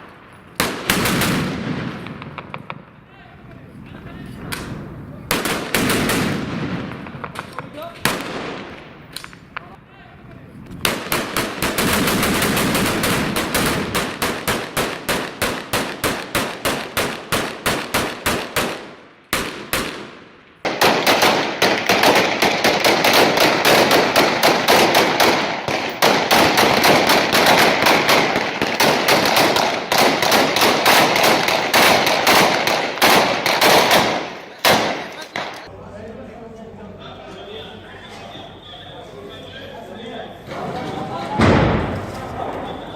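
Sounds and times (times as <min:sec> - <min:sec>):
automatic gunfire: 0:00.6 - 0:02.7, 0:04.6 - 0:08.8, 0:10.8 - 0:35.7.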